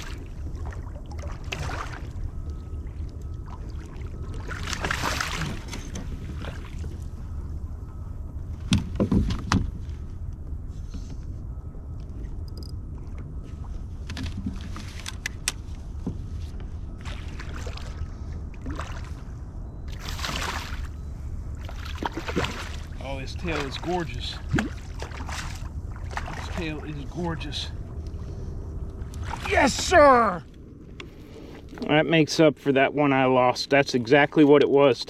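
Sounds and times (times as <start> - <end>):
water splashing: 0.0 - 7.2, 17.0 - 19.3, 19.9 - 28.0, 29.0 - 30.4
steady low rumble: 0.0 - 35.0.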